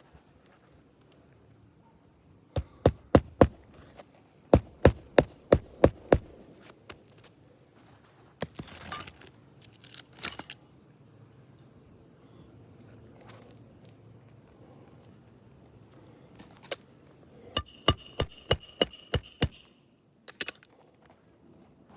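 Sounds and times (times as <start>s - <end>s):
hammer driving nails: 2.6s - 3.7s, 4.6s - 6.3s, 17.6s - 19.7s.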